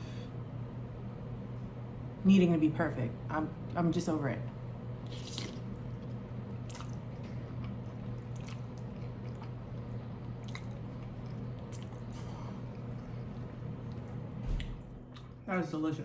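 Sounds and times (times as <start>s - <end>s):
person chewing food: 5.0s - 15.4s.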